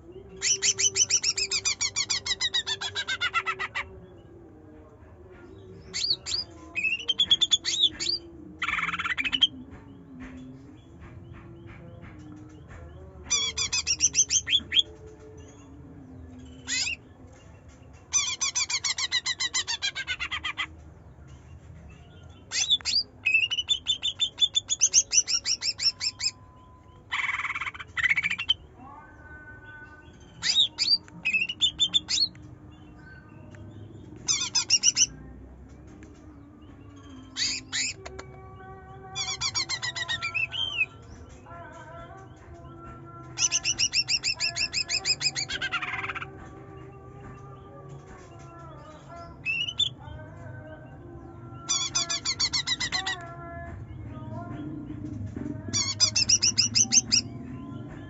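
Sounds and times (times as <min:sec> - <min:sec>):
bird singing rapid chattering notes: 0:00.3 - 0:04.0, 0:05.9 - 0:09.6, 0:13.3 - 0:15.0, 0:18.0 - 0:20.7, 0:21.9 - 0:28.7, 0:30.2 - 0:35.4, 0:36.8 - 0:46.4, 0:47.0 - 0:50.6, 0:51.3 - 0:53.3, 0:55.2 - 0:58.0.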